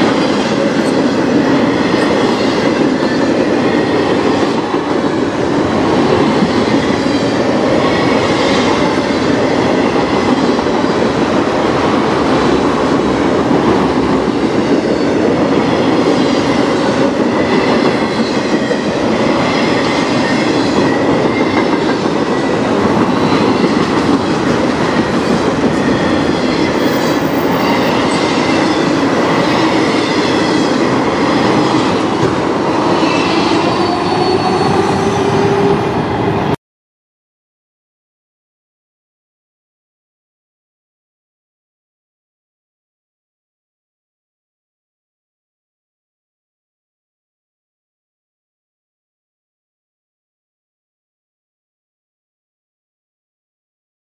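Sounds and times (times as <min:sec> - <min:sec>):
freight train wheels rushing: 0:00.0 - 0:36.6
high wheel squeal: 0:24.9 - 0:32.0, 0:32.8 - 0:35.8.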